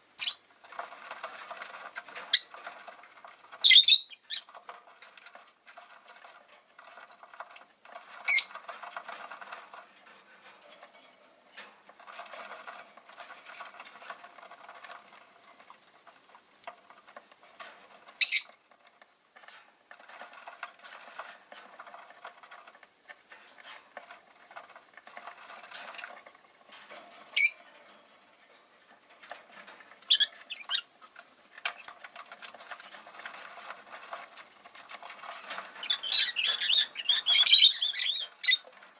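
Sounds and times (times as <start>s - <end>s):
birds scratching and pecking: 0.0s - 38.9s
high bird chirps: 0.2s - 0.4s, 3.7s - 4.4s.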